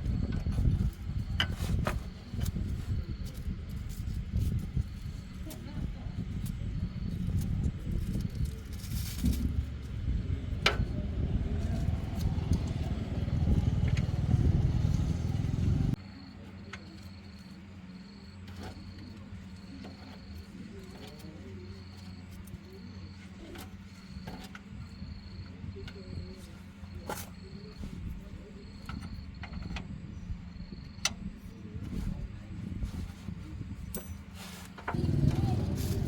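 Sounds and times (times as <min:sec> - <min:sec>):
steady low hum: 0:00.0 - 0:16.0
loud low rumble: 0:09.4 - 0:16.0, 0:35.0 - 0:36.0.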